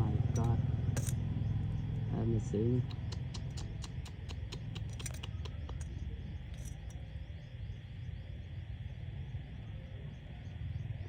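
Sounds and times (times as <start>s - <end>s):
insects chirping: 0.0s - 11.0s
sharp clicks: 2.8s - 6.9s.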